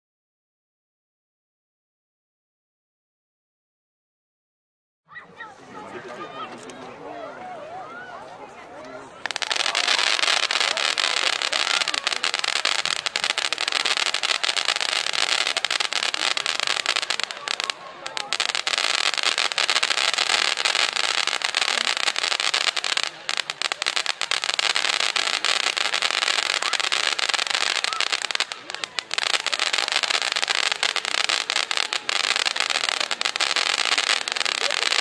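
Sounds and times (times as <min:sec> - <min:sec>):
firework crackling: 0:09.2 - 0:35.0.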